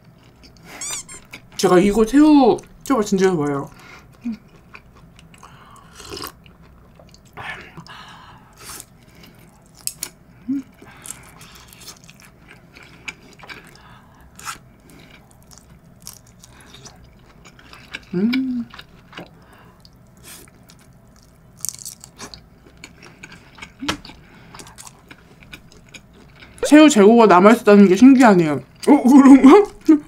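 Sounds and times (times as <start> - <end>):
chewing: 4.0 - 8.0, 8.6 - 26.6.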